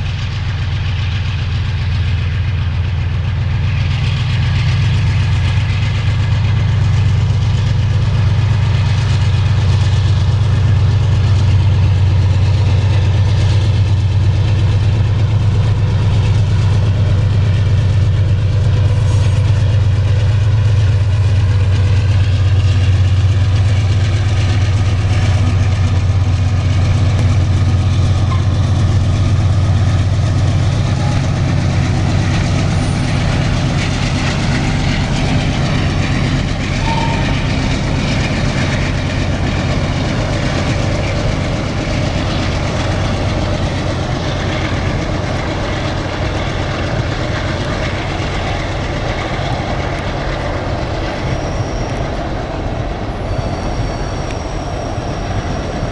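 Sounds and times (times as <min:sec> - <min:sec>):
locomotive engine low drone: 0:00.0 - 0:55.9.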